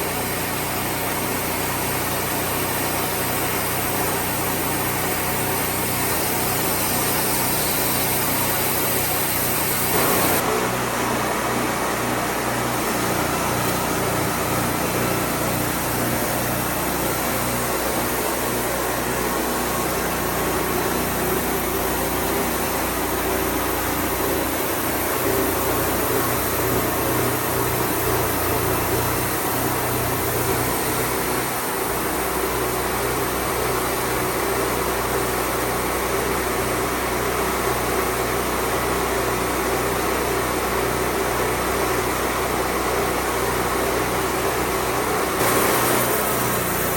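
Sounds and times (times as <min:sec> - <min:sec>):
band sawmill running: 0:00.0 - 0:46.9.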